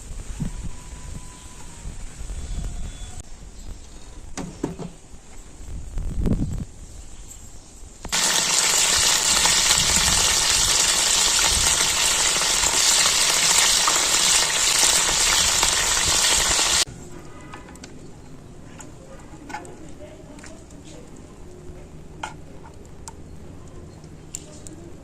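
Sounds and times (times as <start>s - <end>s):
food sizzling in a pan: 8.1s - 16.9s.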